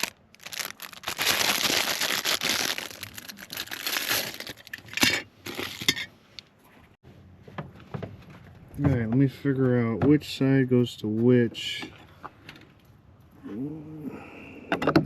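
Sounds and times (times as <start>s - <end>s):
packaging crinkling: 0.0s - 5.9s.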